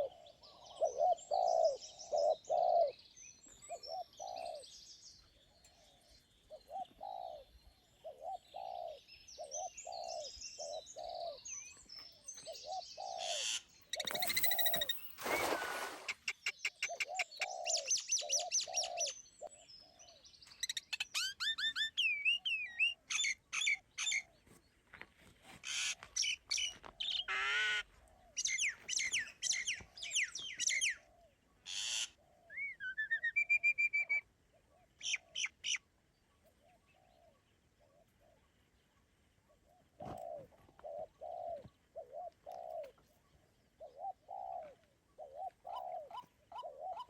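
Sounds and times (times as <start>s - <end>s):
low hooting cooing calls: 0.0s - 3.0s, 5.6s - 11.5s, 39.6s - 43.0s, 43.8s - 47.0s
birds chirping and trilling: 0.0s - 24.7s, 25.6s - 47.0s.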